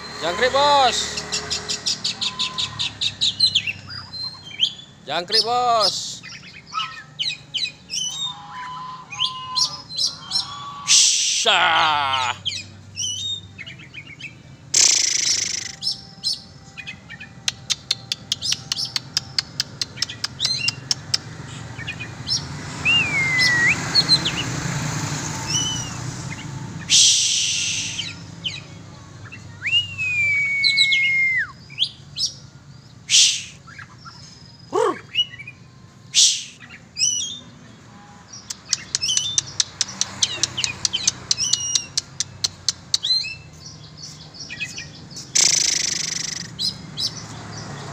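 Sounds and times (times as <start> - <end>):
bird singing: 0.0 - 47.9.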